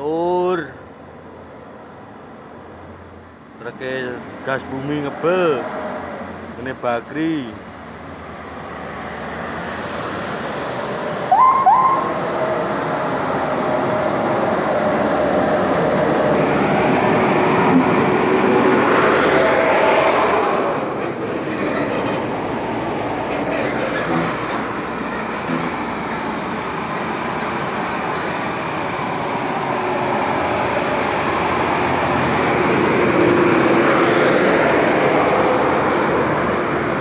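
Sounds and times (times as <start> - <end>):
truck engine and tyre noise: 0.0 - 37.0
short horn toots: 11.3 - 12.2.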